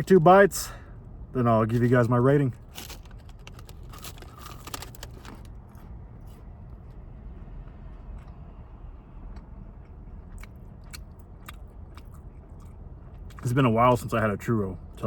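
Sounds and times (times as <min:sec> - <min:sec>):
low background rumble: 0:00.0 - 0:15.0
clicks and wrapper rustles: 0:01.7 - 0:05.8.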